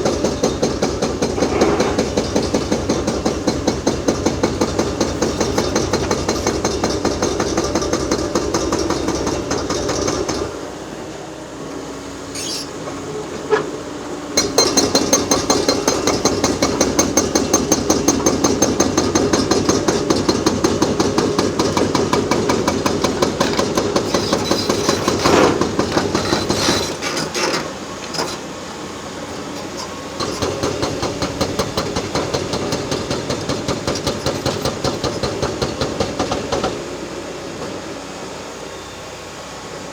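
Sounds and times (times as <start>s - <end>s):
hydraulic breaker hammering concrete: 0.0s - 10.6s, 14.4s - 27.8s, 30.1s - 37.8s.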